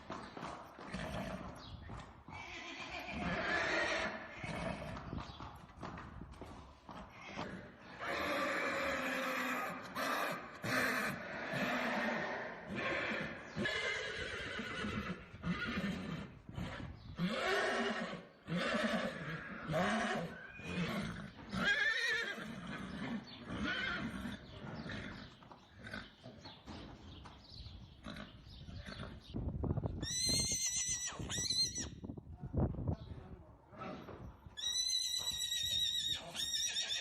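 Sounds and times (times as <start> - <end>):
horses whinnying: 0.9 - 1.6, 2.3 - 5.1, 7.1 - 26.2, 30.0 - 32.0, 33.8 - 37.0.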